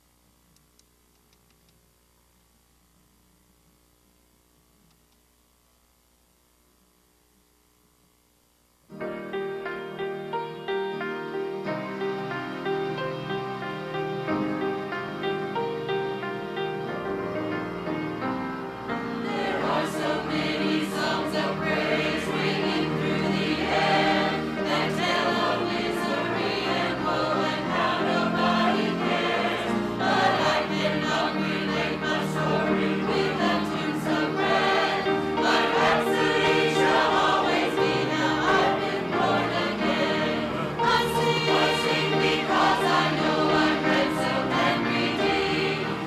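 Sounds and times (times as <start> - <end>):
musical accompaniment: 8.9 - 46.0
choir singing: 17.8 - 46.0.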